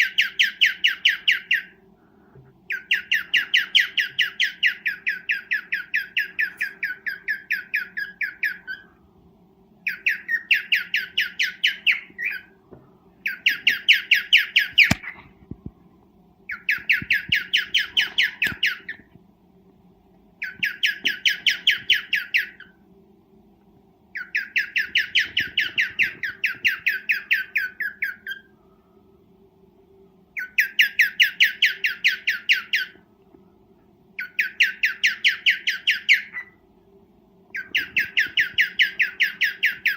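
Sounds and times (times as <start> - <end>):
faint steady hum: 0.0 - 39.9
cockatiel squawking: 2.7 - 8.9, 16.5 - 19.0, 20.4 - 22.7, 24.2 - 28.5, 30.4 - 33.0, 34.2 - 36.5, 37.5 - 39.9.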